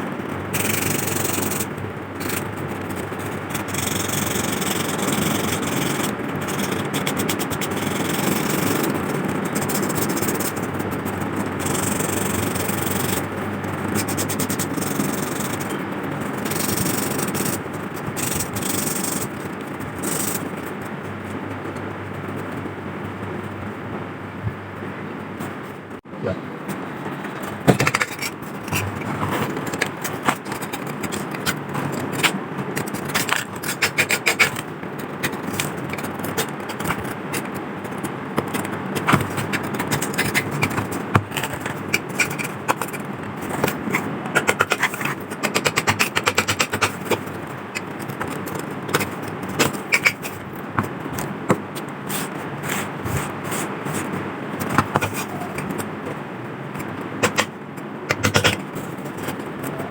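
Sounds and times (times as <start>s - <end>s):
hand scraping rusty metal: 27.1s - 56.0s.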